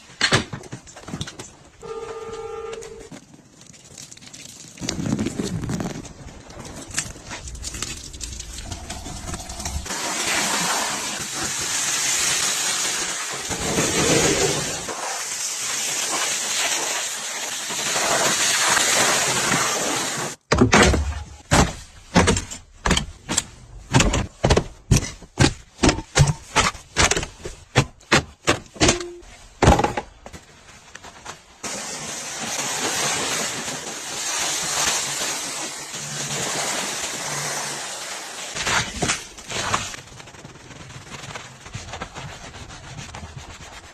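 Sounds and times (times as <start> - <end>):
high-pressure water spray hissing: 8.7 - 20.4, 31.6 - 38.6.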